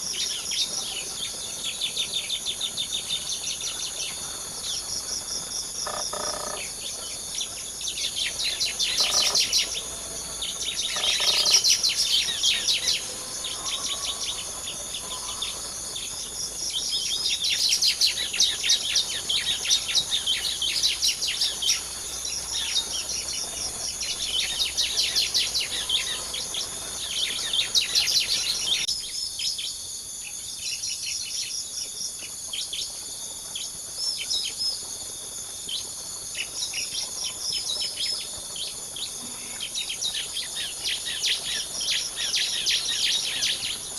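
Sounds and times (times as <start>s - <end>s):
insects droning: 0.0s - 43.9s
birds making rapid high chirps: 5.9s - 13.0s.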